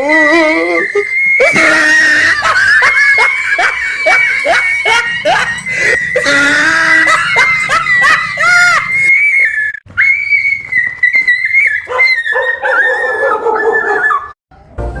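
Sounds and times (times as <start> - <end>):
dog whining: 11.8 - 14.4.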